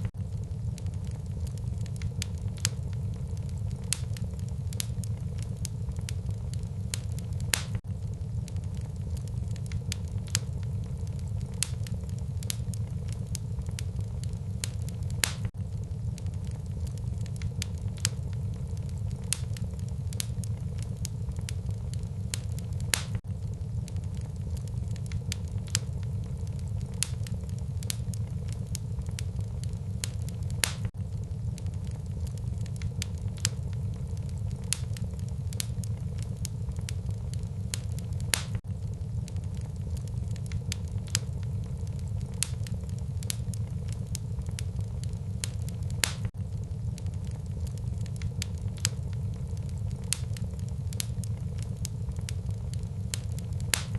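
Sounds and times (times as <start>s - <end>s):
fire crackling and popping: 0.0s - 53.9s
fire flames rumbling: 0.0s - 53.9s
loud wood snap: 22.9s - 23.2s, 38.3s - 38.6s, 46.0s - 46.3s.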